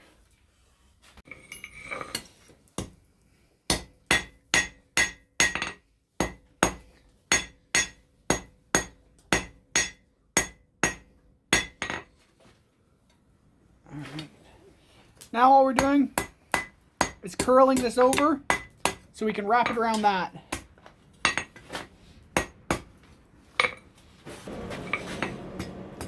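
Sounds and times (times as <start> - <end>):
hammer striking anvil: 3.7 - 11.0, 15.8 - 19.0, 24.5 - 26.0.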